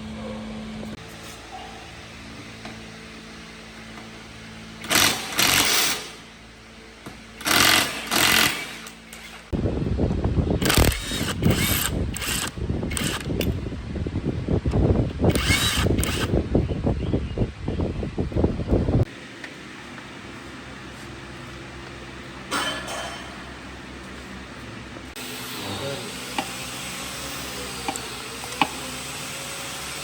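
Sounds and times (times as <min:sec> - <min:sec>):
rapid rattling power tool: 0:04.8 - 0:06.3, 0:07.3 - 0:09.5, 0:10.6 - 0:13.5, 0:15.3 - 0:16.4, 0:25.2 - 0:30.0.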